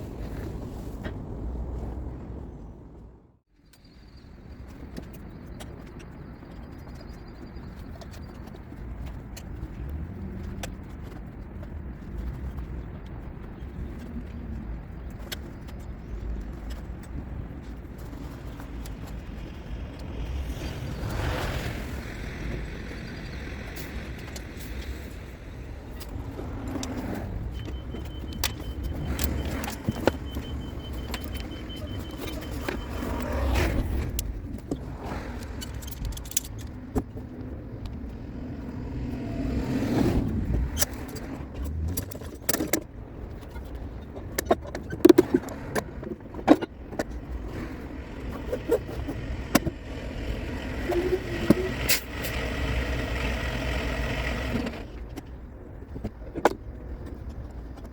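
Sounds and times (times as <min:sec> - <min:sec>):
vehicles passing: 0:00.0 - 0:03.3, 0:04.1 - 0:57.9
traffic rumble: 0:00.0 - 0:57.9.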